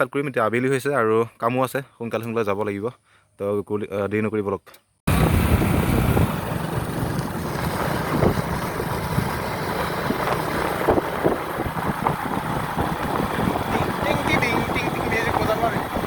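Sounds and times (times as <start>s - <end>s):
motorcycle running: 5.1s - 16.0s
wind buffeting microphone: 5.1s - 16.0s.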